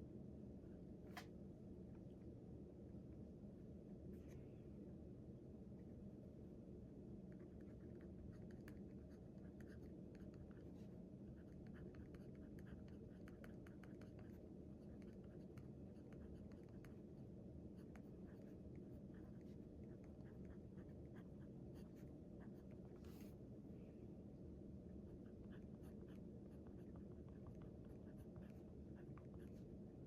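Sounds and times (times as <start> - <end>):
low room hum: 0.0 - 30.0
pen scratching on paper: 25.2 - 29.6.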